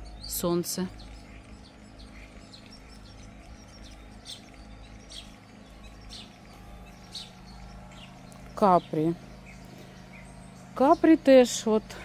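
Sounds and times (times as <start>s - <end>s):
bird chirping: 0.0s - 12.0s
low steady hum: 0.0s - 12.0s.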